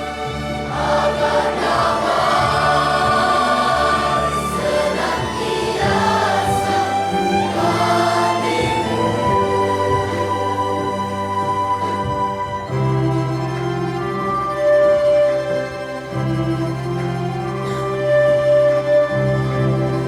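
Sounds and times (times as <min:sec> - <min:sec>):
children's choir singing: 0:00.0 - 0:14.0
string orchestra: 0:00.0 - 0:20.0.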